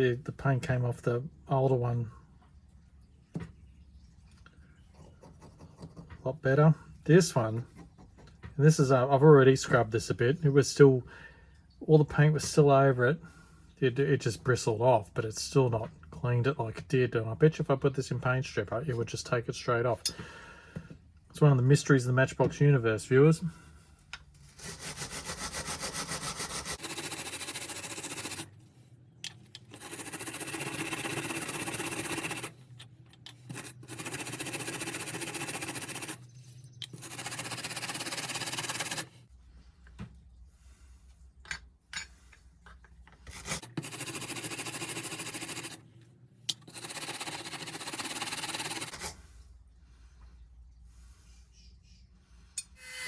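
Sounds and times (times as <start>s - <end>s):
brush scrubbing metal toy car: 24.5s - 28.5s, 29.7s - 32.6s, 33.4s - 36.2s, 37.0s - 39.1s, 43.6s - 45.8s, 46.7s - 48.9s.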